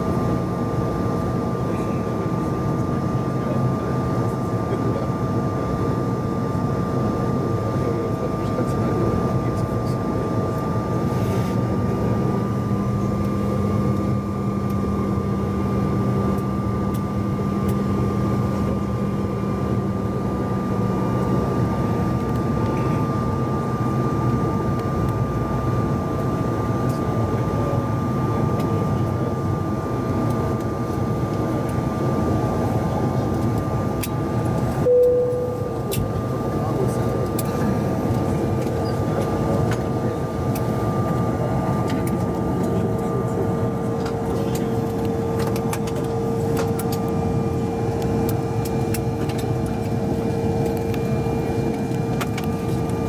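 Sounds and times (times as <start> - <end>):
jet cabin roar: 10.6 - 53.0
brief tone: 34.8 - 36.2.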